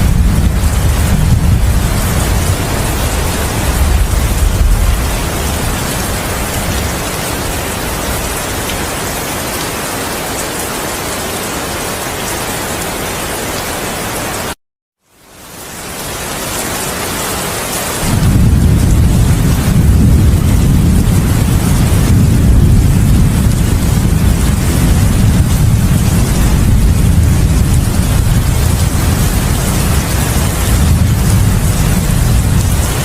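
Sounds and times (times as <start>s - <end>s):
low thunder rumble: 0.0s - 8.6s, 18.0s - 33.0s
heavy rain: 0.0s - 33.0s.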